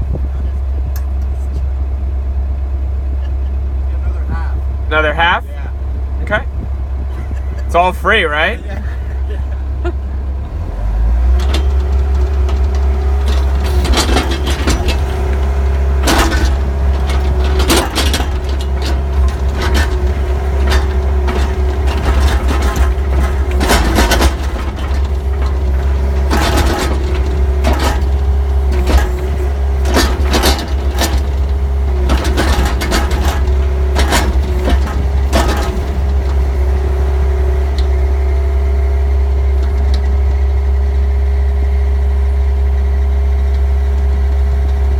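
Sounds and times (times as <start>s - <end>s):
constant whine: 0.0s - 44.9s
diesel engine running: 0.0s - 44.9s
clanks and knocks: 11.3s - 36.9s.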